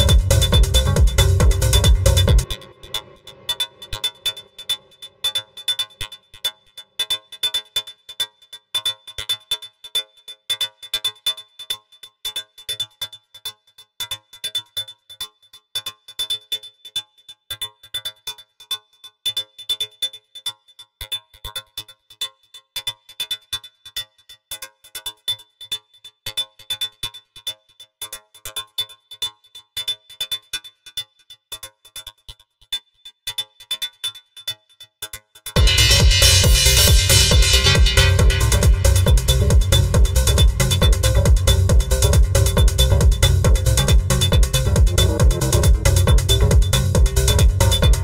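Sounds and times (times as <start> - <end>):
drum machine thump: 0.0 - 2.6, 35.6 - 48.0
electronic techno loop: 0.0 - 4.8, 35.6 - 48.0
steady high-pitched tone: 0.0 - 5.2, 35.6 - 48.0.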